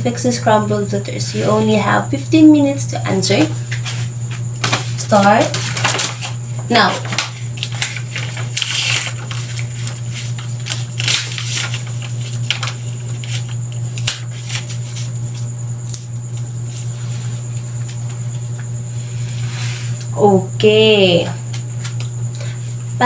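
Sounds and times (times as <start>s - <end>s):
faint high whine: 0.0s - 23.0s
paper rustling: 3.7s - 17.6s.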